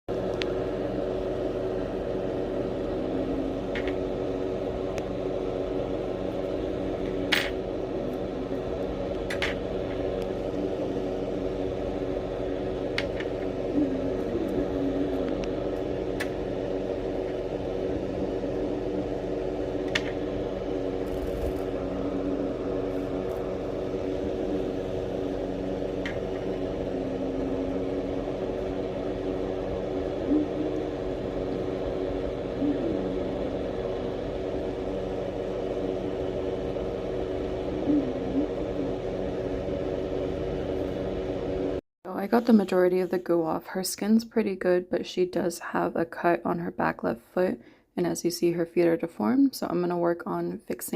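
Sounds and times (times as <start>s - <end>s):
small motor humming: 0.2s - 41.8s.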